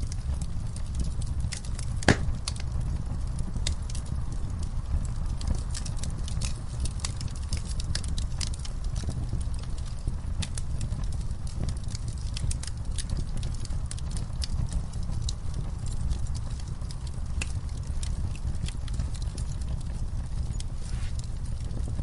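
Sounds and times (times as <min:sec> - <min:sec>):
burning wood crackling: 0:00.0 - 0:22.0
low rumble of flames: 0:00.0 - 0:22.0
loud pop of burning wood: 0:01.5 - 0:02.7.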